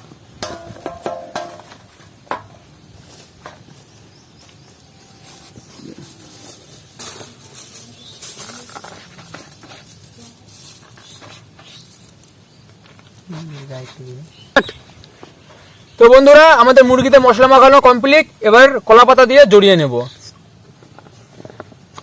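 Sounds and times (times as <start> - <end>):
hands rubbing raw chicken: 4.5 - 14.3.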